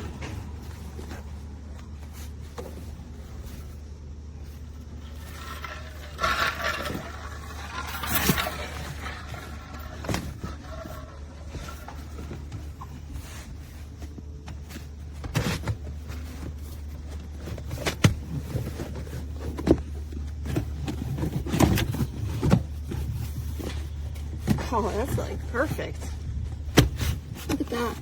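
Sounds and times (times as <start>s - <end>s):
steady low hum: 0.0s - 28.0s
rubber mat knocks and thumps: 26.5s - 28.0s.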